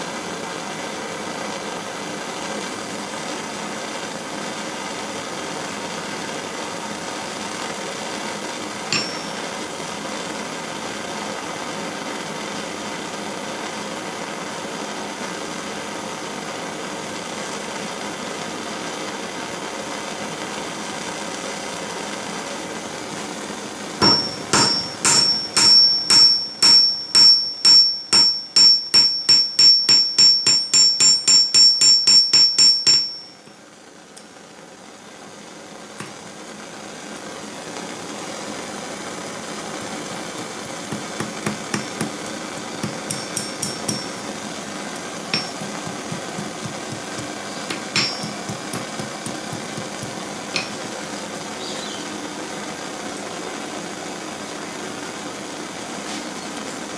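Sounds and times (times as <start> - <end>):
propane torch hissing: 0.0 - 32.0, 33.4 - 56.9
hammer blows ringing on anvil: 8.9 - 9.6, 24.0 - 33.4, 39.8 - 51.1.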